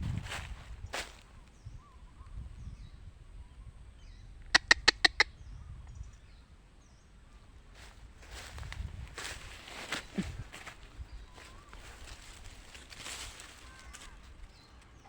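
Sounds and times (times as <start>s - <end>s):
faint bird chirping: 0.3s - 15.0s
bird calling sharp notes: 4.4s - 5.5s.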